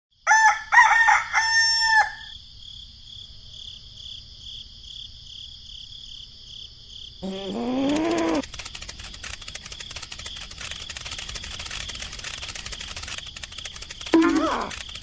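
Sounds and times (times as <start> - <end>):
rooster crowing: 0.2 - 2.4
faint high pulsing chirping: 7.2 - 15.0.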